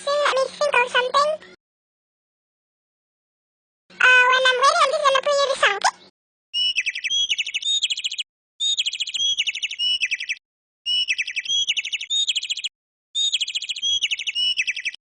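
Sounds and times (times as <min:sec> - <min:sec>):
bird chirping: 0:05.9 - 0:15.0.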